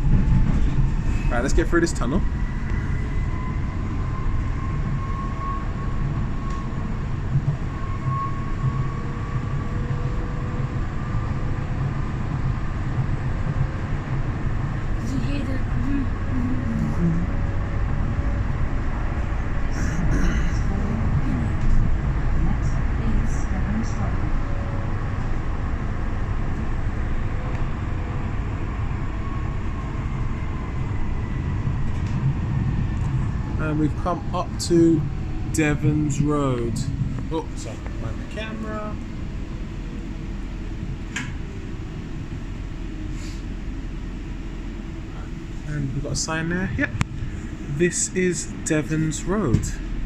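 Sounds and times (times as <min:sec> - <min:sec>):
faint whine: 0:00.0 - 0:50.0
train rumbling in a tunnel: 0:00.0 - 0:50.0.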